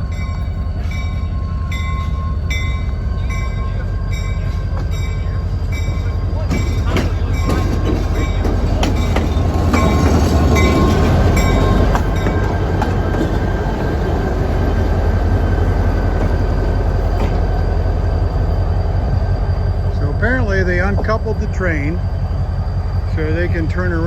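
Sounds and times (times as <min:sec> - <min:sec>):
train rumbling on rails: 0:00.0 - 0:24.0
sharp clanks and clicks: 0:06.5 - 0:13.4.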